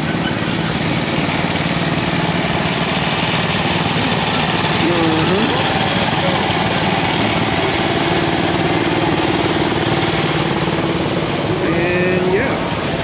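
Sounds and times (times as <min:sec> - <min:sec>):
engine running steadily: 0:00.0 - 0:13.0
voices nearby: 0:03.1 - 0:09.6, 0:10.9 - 0:13.0.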